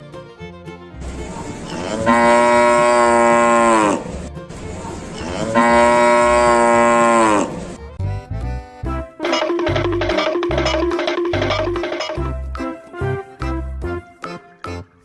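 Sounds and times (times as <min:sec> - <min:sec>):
cow mooing: 0:01.7 - 0:04.2, 0:05.2 - 0:07.7.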